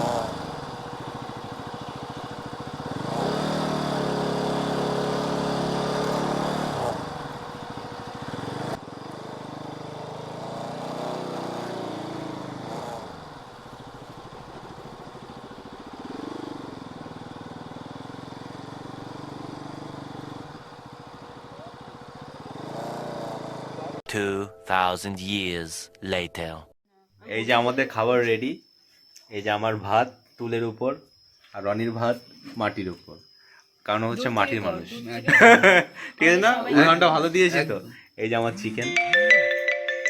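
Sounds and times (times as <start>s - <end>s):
vehicle engine revving: 0.0s - 24.0s.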